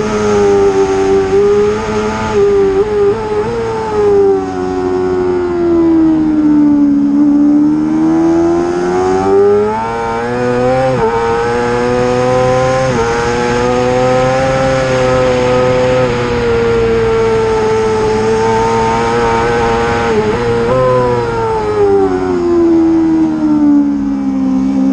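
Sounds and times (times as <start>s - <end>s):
racing motorcycle engine revving: 0.0s - 24.9s.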